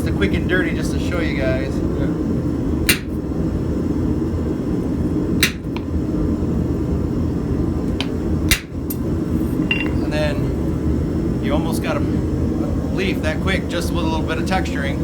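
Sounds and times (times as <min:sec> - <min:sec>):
steady low rumble: 0:00.0 - 0:15.0
hammer striking steel on anvil: 0:02.9 - 0:03.2, 0:05.4 - 0:05.7, 0:08.5 - 0:08.8, 0:09.6 - 0:10.0.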